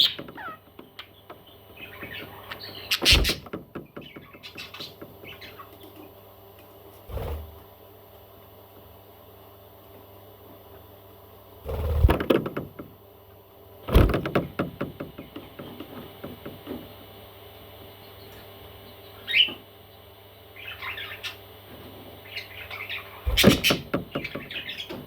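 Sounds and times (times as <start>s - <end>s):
baby parrot chirp: 1.8s - 3.4s
clattering knocks: 13.9s - 16.9s.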